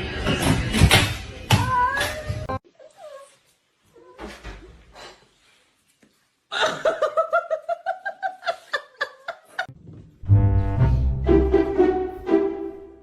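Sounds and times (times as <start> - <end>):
music: 10.2 - 13.0.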